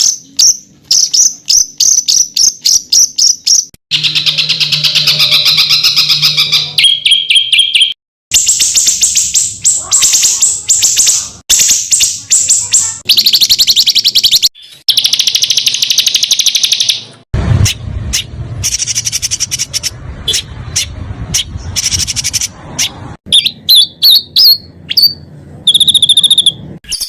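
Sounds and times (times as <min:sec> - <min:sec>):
songbirds trilling: 0:00.0 - 0:17.0.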